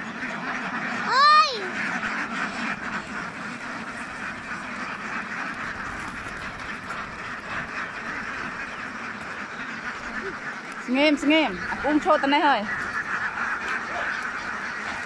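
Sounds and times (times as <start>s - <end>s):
flock of ducks quacking: 0.0s - 15.0s.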